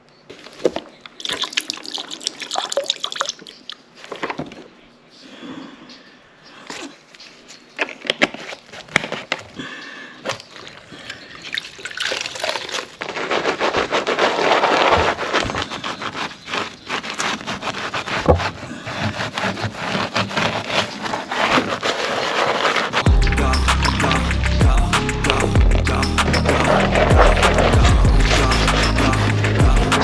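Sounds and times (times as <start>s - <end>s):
steady scraping: 13.0s - 30.0s.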